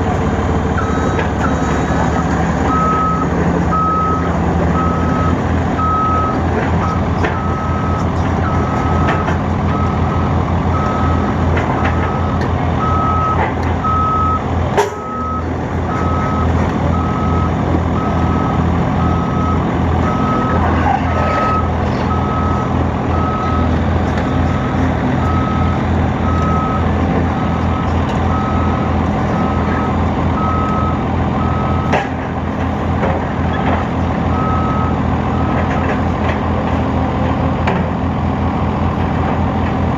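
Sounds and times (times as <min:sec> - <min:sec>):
diesel engine running: 0:00.0 - 0:39.9
backup alarm beeping: 0:00.8 - 0:01.7, 0:02.7 - 0:14.4.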